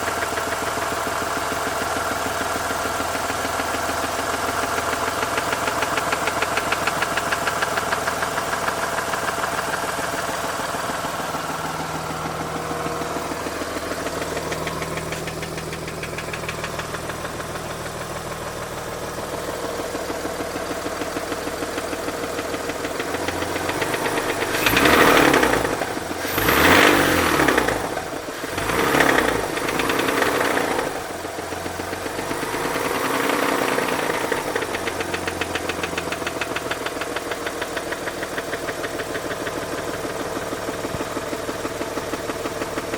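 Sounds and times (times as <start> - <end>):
rotary engine idling with knocking: 0.0 - 42.9
engine revving blips: 23.6 - 31.0.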